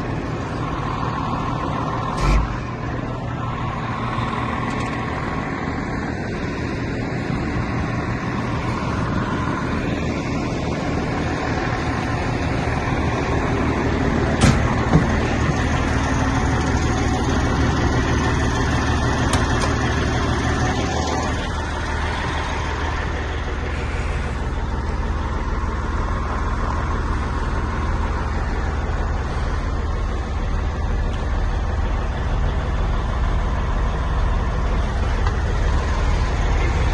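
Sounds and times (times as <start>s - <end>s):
truck engine idling: 0.0s - 36.9s
sharp knocks: 14.4s - 15.6s.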